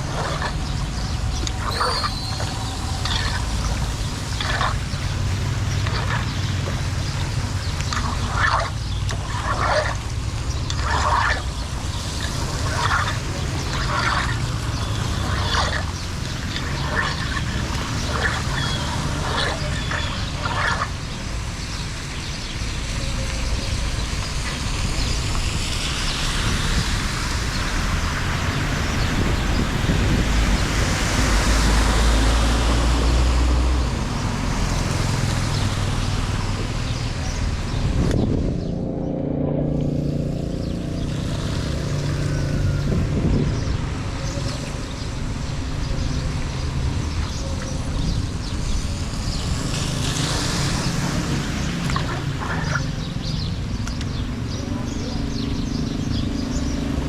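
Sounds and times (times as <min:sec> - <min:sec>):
running water: 0:00.0 - 0:38.2, 0:39.7 - 0:54.6
low rumble: 0:36.5 - 0:46.8.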